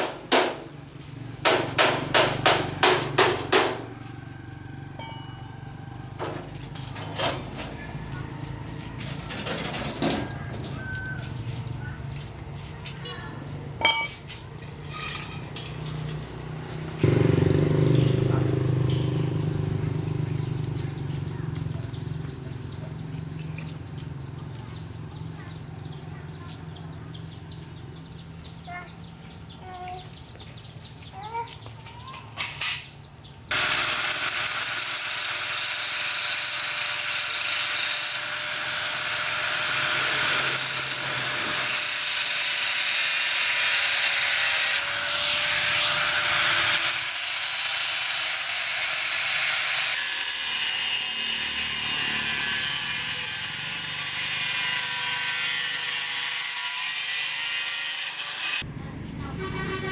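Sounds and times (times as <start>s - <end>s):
electric power tool whine: 33.5s - 58.6s.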